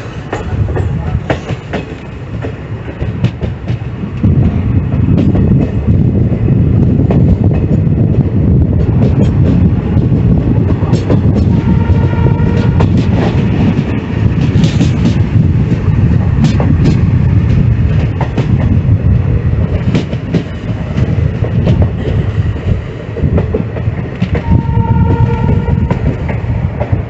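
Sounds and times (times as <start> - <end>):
train wheels rumbling on track: 0.0 - 27.0
clatter over rail joints: 6.8 - 27.0.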